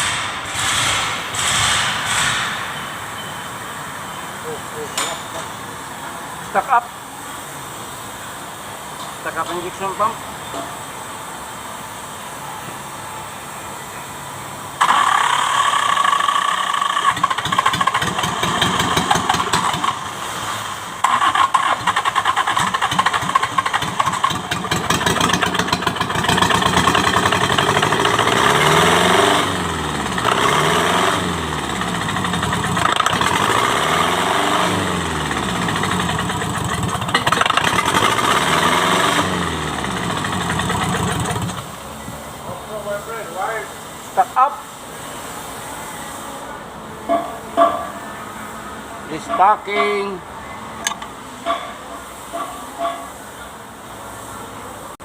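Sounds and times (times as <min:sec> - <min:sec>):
diesel engine starting and revving: 0:00.0 - 0:06.8, 0:14.6 - 0:43.6.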